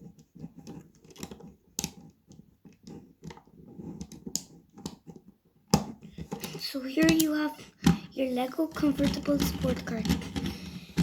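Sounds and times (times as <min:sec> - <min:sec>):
plastic bricks clicking and rattling: 0:06.1 - 0:08.0.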